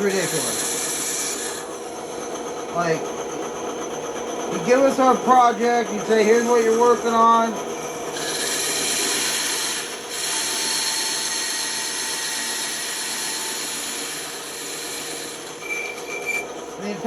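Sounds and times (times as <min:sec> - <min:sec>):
bandsaw cutting wood: 0:00.0 - 0:02.0, 0:06.0 - 0:17.0.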